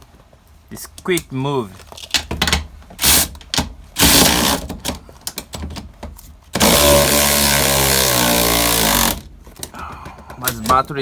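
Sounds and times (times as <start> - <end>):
power tool spinning bolts: 4.0 - 4.7, 6.6 - 9.2.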